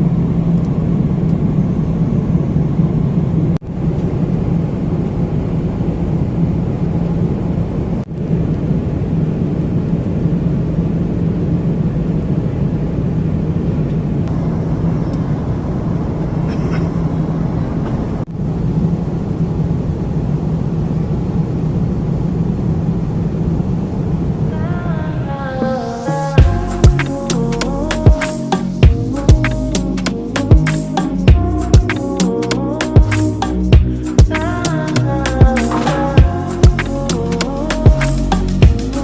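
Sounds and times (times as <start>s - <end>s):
airliner cabin noise: 0.0s - 39.0s.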